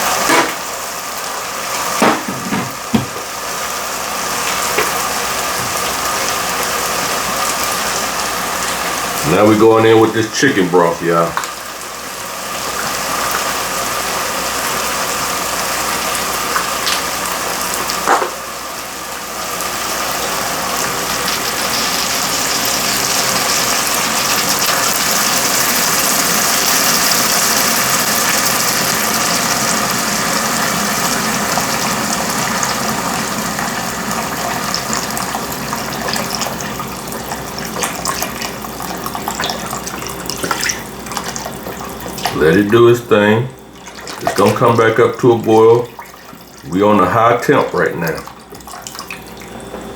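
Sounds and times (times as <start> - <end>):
knock: 2.0 - 3.2
broth pouring into a pot: 11.4 - 49.6.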